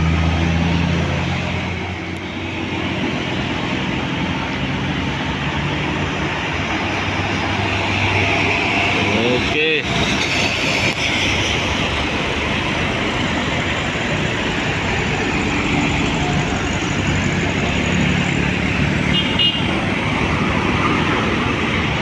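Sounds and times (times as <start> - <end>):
road traffic passing close: 0.0 - 22.0
car horn toot: 19.1 - 19.8.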